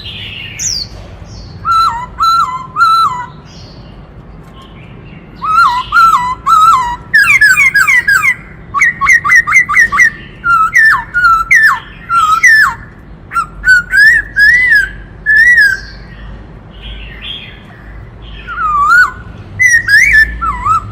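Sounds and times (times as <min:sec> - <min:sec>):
bird singing whistled phrases: 0:01.6 - 0:03.7, 0:05.4 - 0:16.2, 0:18.3 - 0:20.9.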